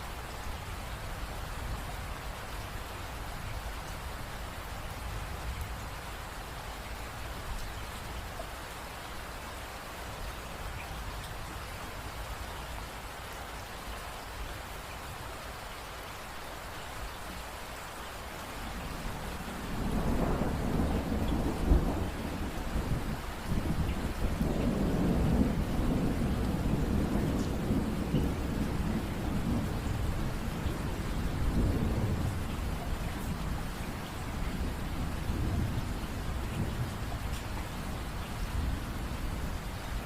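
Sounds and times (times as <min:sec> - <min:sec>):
rain hissing: 0:17.6 - 0:40.0
low roll of thunder: 0:18.8 - 0:40.0.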